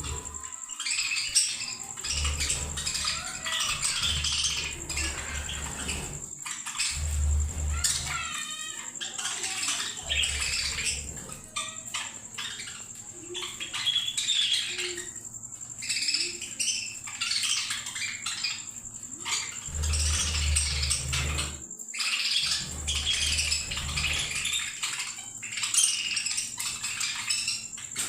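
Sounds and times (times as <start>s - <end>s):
parrots chirping and chattering: 0.0s - 28.0s.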